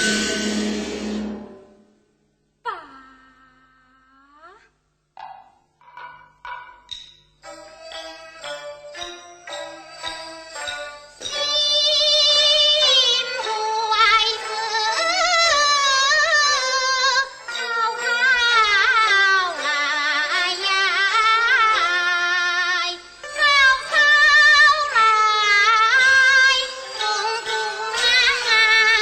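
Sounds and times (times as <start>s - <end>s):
instrumental accompaniment: 0.0s - 2.2s, 5.2s - 29.0s
opera singer with vibrato: 11.3s - 29.0s.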